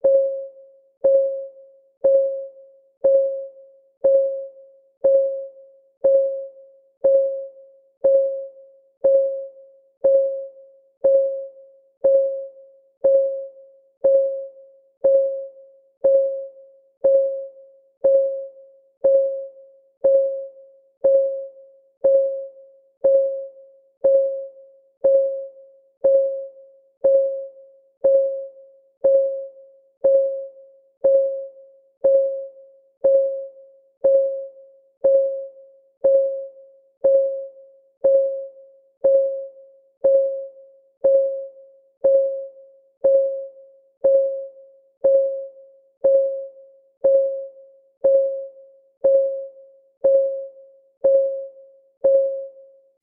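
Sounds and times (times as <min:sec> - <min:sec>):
timer ticking tones: 0:00.0 - 0:52.7.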